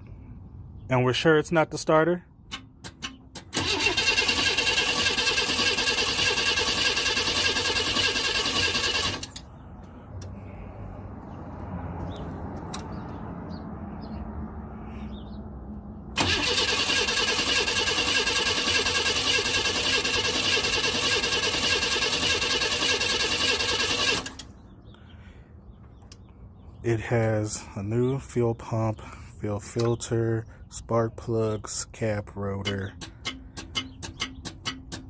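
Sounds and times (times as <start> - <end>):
car engine cranking without starting: 2.9 - 9.6, 16.2 - 24.6.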